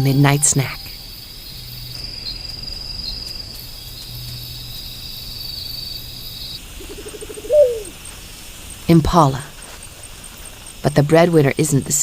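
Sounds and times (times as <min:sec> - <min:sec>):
crickets chirring: 0:00.0 - 0:12.0
pulsed animal call: 0:06.8 - 0:08.0.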